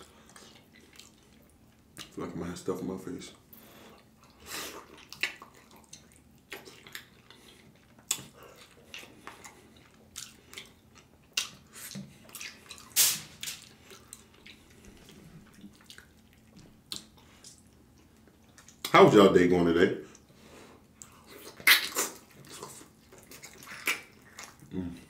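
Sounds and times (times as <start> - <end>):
wet mouth sounds eating: 4.0 - 18.9, 21.0 - 25.0.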